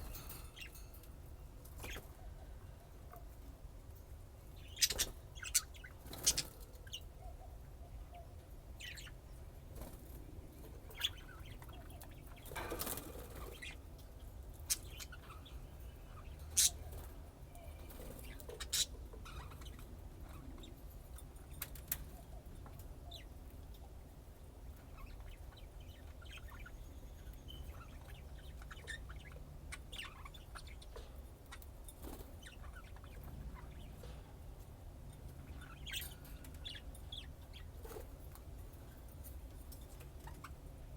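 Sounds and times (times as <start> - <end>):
budgerigars chirping: 4.6 - 7.0, 14.6 - 16.8, 27.5 - 34.0.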